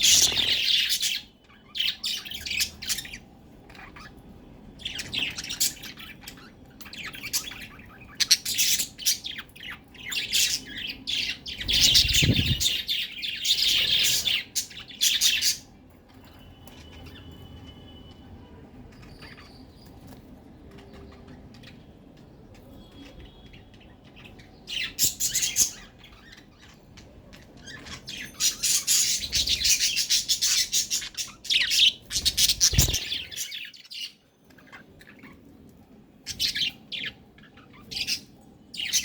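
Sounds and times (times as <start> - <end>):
budgerigars chirping and chattering: 0.0 - 17.5, 18.8 - 35.7, 36.3 - 39.0.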